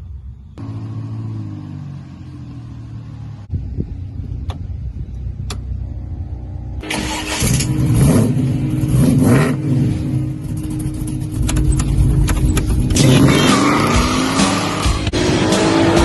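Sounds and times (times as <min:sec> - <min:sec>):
car engine revving: 0:05.4 - 0:16.0.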